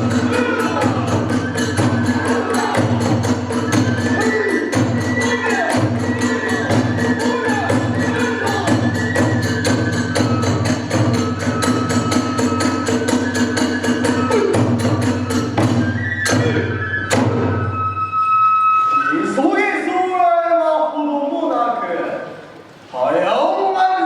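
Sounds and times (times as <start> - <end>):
hand cymbals beating: 0.0 - 15.8
drum beating fast rhythm: 0.0 - 17.4
flute melody: 0.0 - 20.3.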